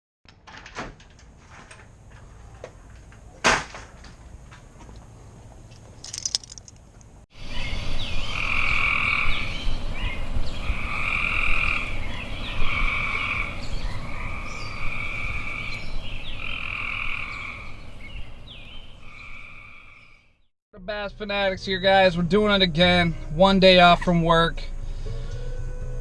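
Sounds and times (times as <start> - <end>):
frogs trilling: 7.4 - 17.8, 19.0 - 20.3.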